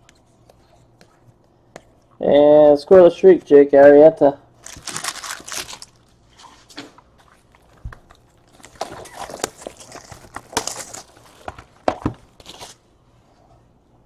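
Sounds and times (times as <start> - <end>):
wrappers crinkling and tearing: 4.6 - 12.9.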